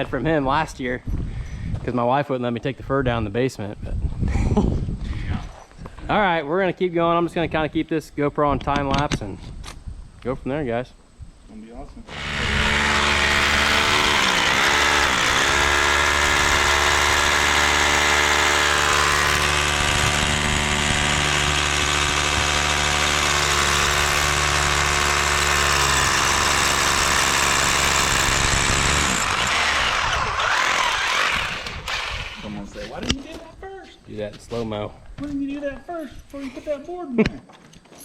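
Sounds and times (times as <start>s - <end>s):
small engine running: 12.1s - 32.6s.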